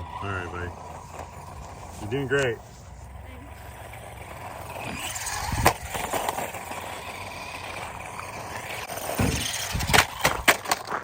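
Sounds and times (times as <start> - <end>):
toy truck driving over rough ground: 0.0 - 11.0
sharp knocks of truck landing: 9.1 - 10.5.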